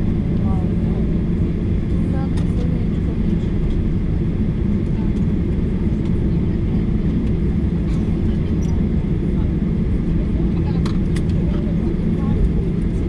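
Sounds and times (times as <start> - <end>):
airliner engine rumble in cabin: 0.0 - 13.0.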